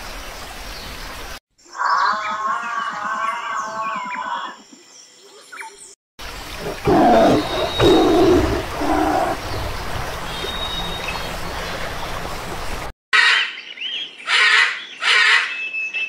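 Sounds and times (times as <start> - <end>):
waterfall rushing: 6.2 - 12.9
tiger roaring: 6.6 - 10.1.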